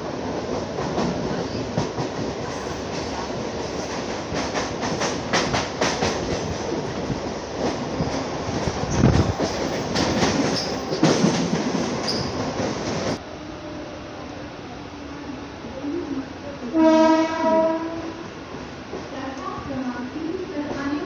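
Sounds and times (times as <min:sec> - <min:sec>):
heavy train rumble: 0:00.0 - 0:21.0
train wheels clattering over rail joints: 0:07.6 - 0:13.2
high wheel squeals: 0:12.0 - 0:12.5.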